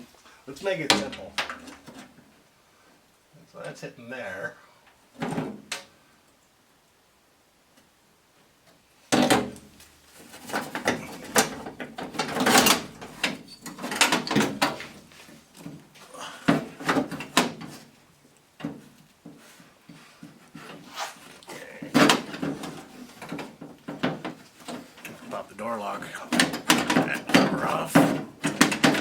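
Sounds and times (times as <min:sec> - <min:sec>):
metal parts knocking and clanking: 0:10.3 - 0:15.8, 0:21.9 - 0:29.0.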